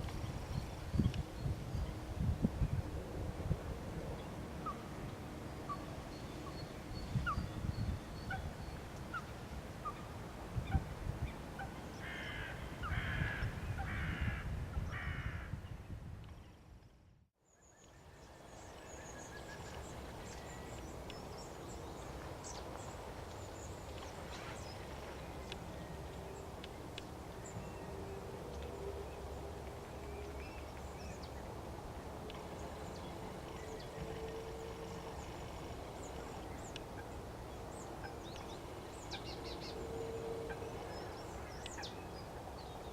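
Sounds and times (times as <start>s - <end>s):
harsh caw-like bird calls: 12.0s - 15.6s.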